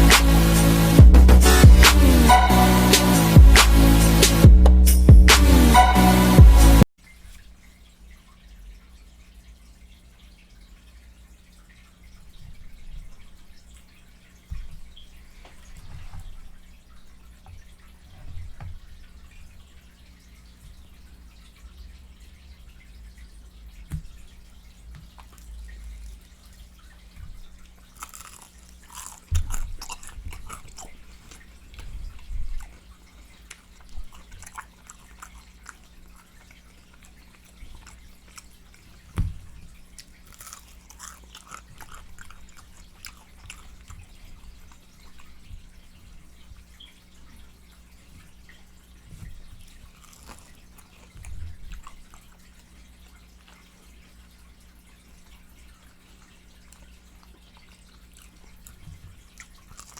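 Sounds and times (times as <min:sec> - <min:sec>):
dull low thumps: 0:00.0 - 0:02.3, 0:03.2 - 0:05.8
wet chewing and lip smacking: 0:25.0 - 0:26.5, 0:27.6 - 0:45.7, 0:49.2 - 0:54.0, 0:56.1 - 0:59.9.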